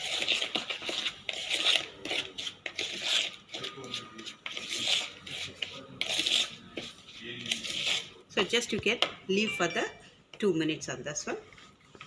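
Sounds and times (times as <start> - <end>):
spoon scraping a bowl: 0.0 - 8.2.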